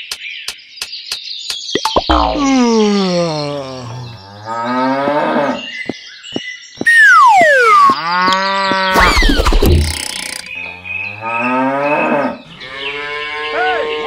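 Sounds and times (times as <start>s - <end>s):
falling whistle-like tone: 6.8s - 8.0s.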